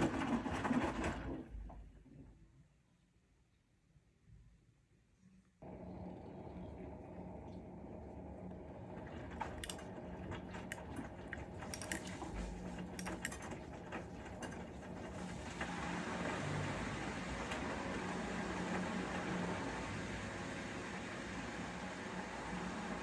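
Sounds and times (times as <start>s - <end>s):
washing machine humming: 0.0s - 2.1s, 5.6s - 23.0s
clicks and knocks: 11.6s - 12.2s.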